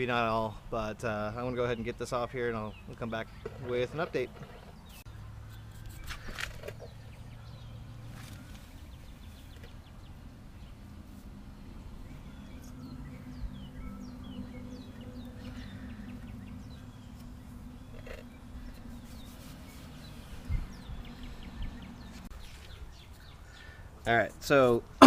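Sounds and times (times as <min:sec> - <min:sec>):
birds chirping: 0:00.0 - 0:25.0
steady low hum: 0:00.1 - 0:24.0.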